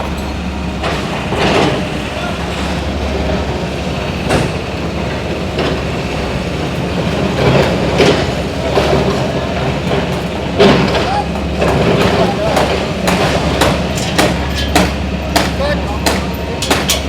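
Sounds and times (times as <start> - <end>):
mechanical rumble and clatter: 0.0 - 17.0
sharp knocks: 10.0 - 17.0.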